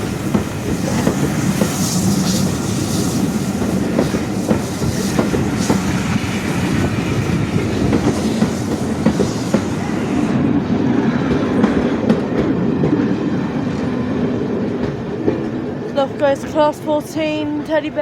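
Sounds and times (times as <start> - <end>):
high hiss: 0.0 - 10.4
train wheels clattering: 0.0 - 10.6
train rumble: 0.0 - 18.0.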